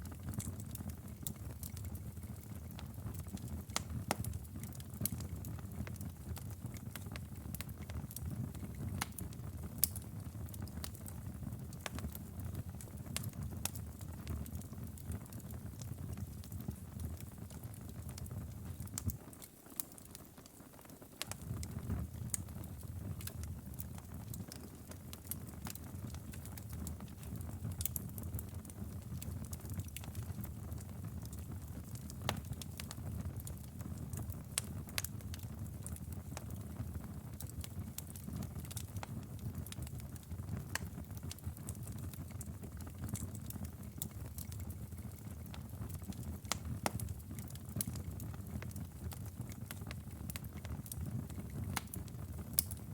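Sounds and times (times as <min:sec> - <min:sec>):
fire crackling and popping: 0:00.0 - 0:52.9
low rumble of flames: 0:00.0 - 0:52.9.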